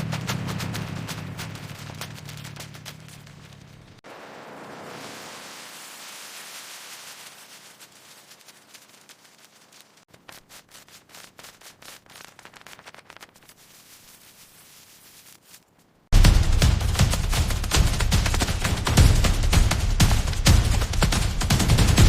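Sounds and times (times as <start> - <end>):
sharp crackling pops: 0.0 - 21.6
steady hiss: 4.0 - 15.9.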